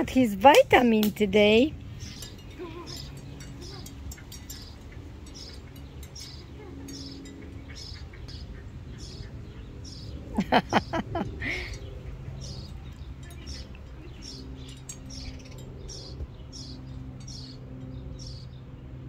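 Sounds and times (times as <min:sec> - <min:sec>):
low background hum: 0:00.0 - 0:19.0
small birds chirping: 0:00.0 - 0:19.0.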